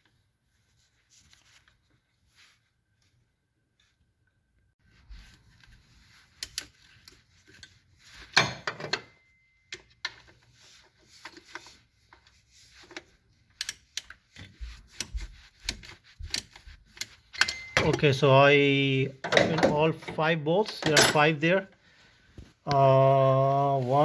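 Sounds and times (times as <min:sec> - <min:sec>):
hand tools clattering on metal: 0:17.4 - 0:18.2, 0:19.2 - 0:21.4.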